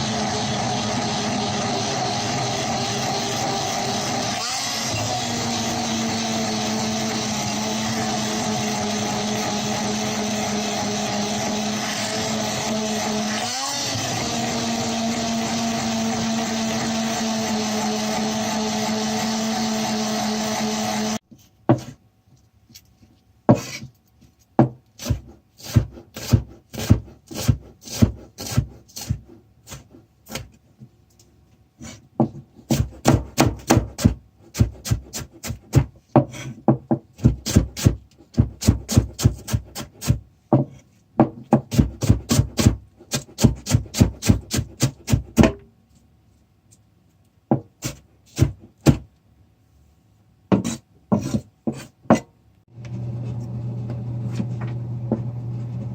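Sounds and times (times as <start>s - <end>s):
small electric kitchen motor: 0.0s - 21.2s, 52.7s - 55.9s
sharp scraping strokes on wood: 50.5s - 52.2s.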